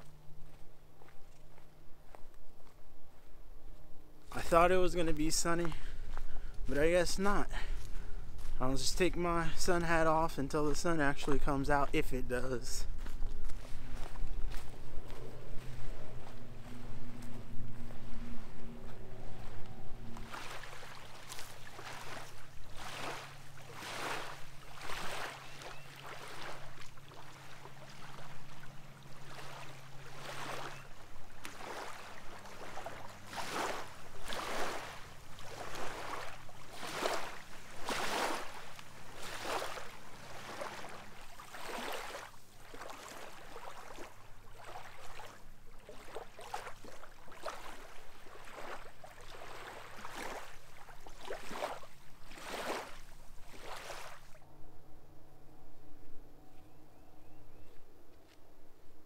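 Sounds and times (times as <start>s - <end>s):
footsteps on dirt trail: 0.0s - 27.7s
faint low hum: 12.8s - 41.5s, 54.3s - 59.0s.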